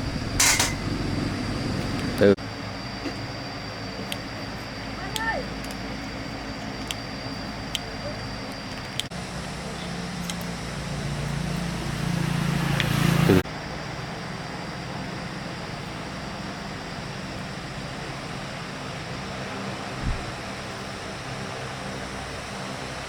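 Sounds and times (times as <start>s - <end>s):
quieter mechanical hum: 0.0s - 23.0s
small generator engine running: 0.0s - 23.0s
short thump: 20.0s - 20.3s.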